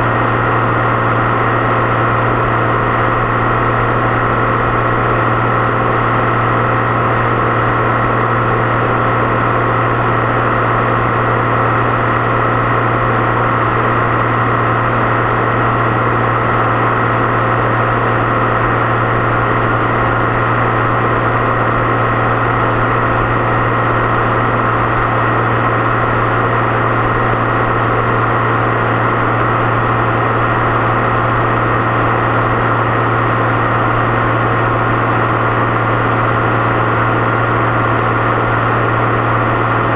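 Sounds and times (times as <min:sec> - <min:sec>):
tractor engine hum: 0:00.0 - 0:39.9.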